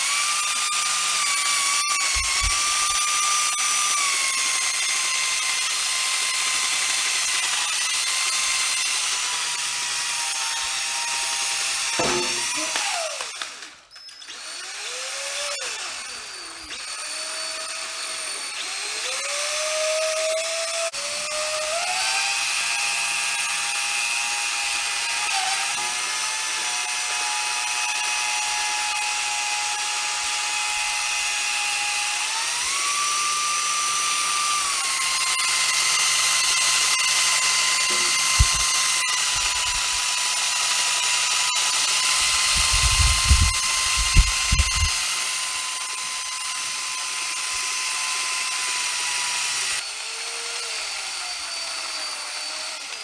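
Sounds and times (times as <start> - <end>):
power drill whining: 0.0 - 53.0
low knocks: 12.0 - 12.8, 37.9 - 38.8.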